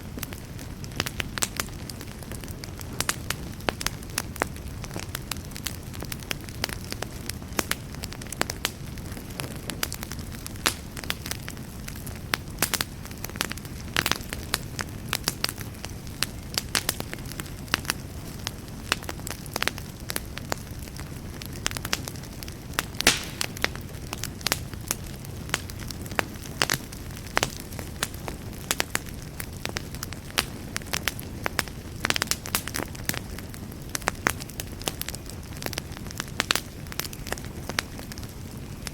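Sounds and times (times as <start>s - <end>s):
fire crackling and popping: 18.9s - 24.6s, 25.4s - 38.9s.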